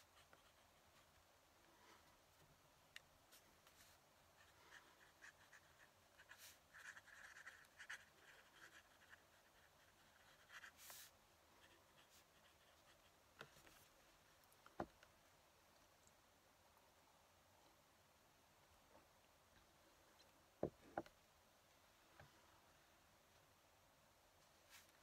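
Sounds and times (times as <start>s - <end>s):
pen nib scratching paper: 0.0s - 1.2s, 3.3s - 13.9s.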